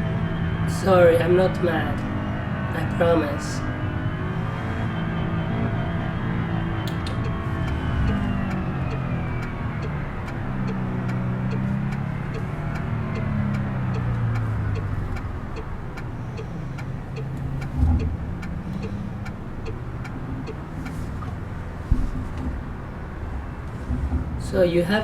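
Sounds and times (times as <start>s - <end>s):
car engine running: 0.0s - 25.0s
steady ticking: 6.9s - 21.4s
thump: 21.8s - 22.6s.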